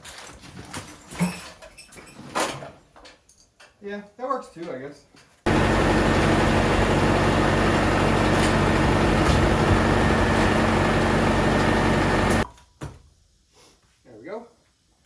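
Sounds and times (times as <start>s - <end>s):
loud machine noise: 5.5s - 12.4s
low hum: 5.5s - 12.4s.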